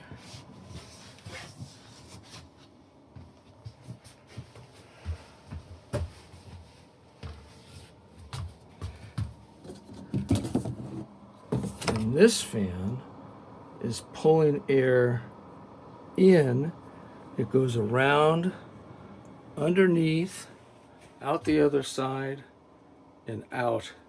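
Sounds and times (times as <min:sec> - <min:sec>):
computer fans humming: 0:00.0 - 0:24.0
knocks and bumps from handling: 0:09.7 - 0:12.0.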